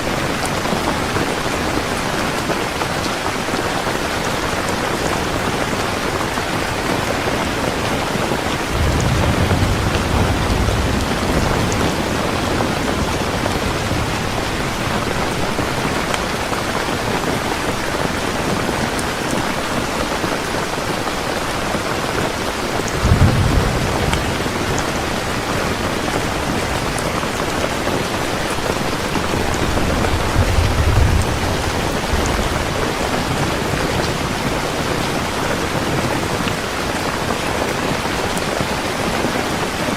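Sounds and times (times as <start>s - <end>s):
steady rain falling: 0.0s - 39.9s
low thunder rumbling: 7.4s - 18.6s, 22.1s - 35.2s.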